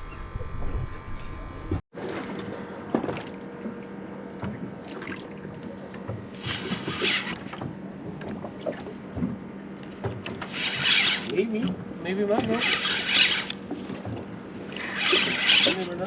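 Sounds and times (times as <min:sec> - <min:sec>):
high-pitched rasping: 0:00.0 - 0:01.8
boat engine low hum: 0:00.0 - 0:16.0
water noise: 0:00.0 - 0:16.0
wind: 0:00.0 - 0:16.0.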